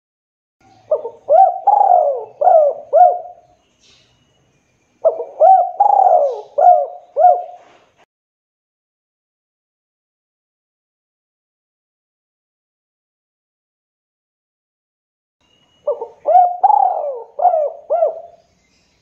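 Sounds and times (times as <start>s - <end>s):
dove cooing: 0.7s - 3.5s, 5.0s - 7.8s, 15.8s - 18.4s.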